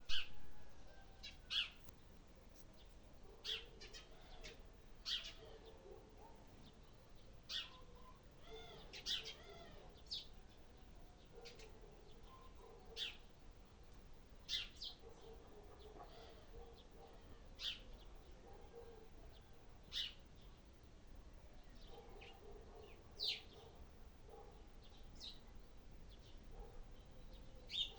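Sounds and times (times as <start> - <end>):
soft low bird chirping: 0.0 - 10.4, 21.6 - 27.9.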